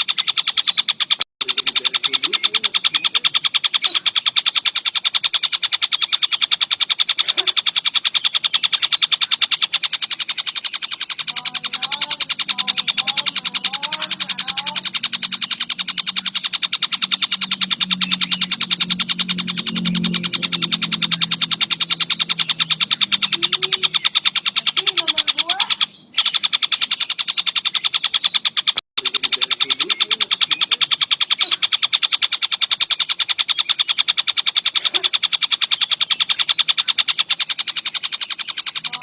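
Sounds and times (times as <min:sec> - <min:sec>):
kingfisher rattling trill: 0:00.0 - 0:39.0
low steady hum: 0:11.3 - 0:25.4
faint wavering notes: 0:11.4 - 0:24.1.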